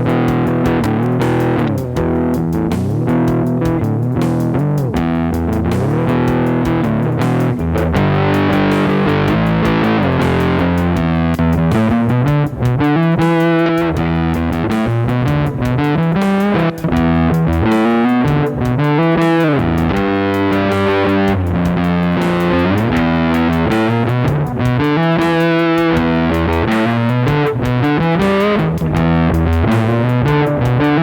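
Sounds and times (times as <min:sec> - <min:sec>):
distorted electric guitar: 0:00.0 - 0:31.0.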